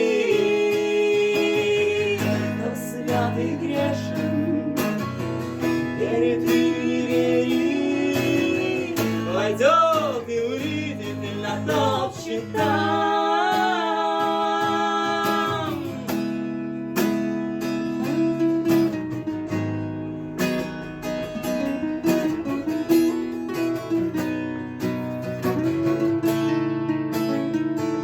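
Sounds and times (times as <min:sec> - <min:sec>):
acoustic guitar strummed and picked: 0:00.0 - 0:28.0.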